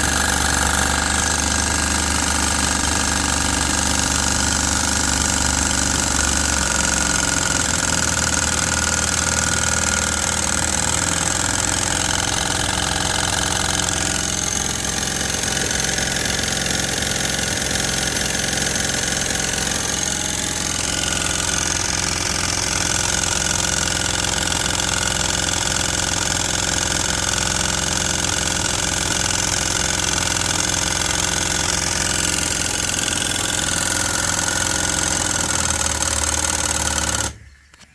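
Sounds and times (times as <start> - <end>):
steam feed pump running: 0.0 - 37.4.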